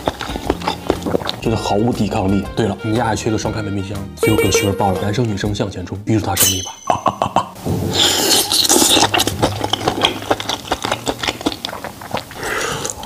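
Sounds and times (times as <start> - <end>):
chewing crackly clicks: 0.0 - 1.4, 8.7 - 13.0.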